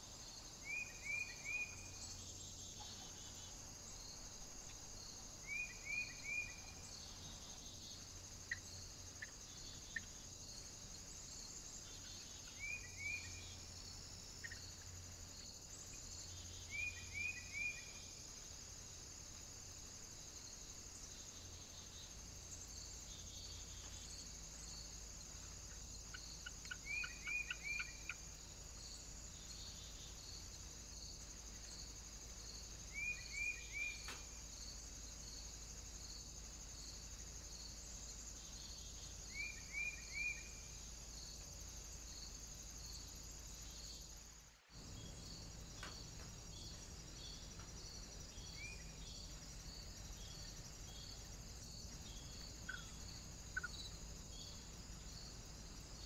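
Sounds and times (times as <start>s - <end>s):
small birds chirping: 14.4s - 18.2s, 21.0s - 35.8s, 36.7s - 44.2s, 44.8s - 56.0s.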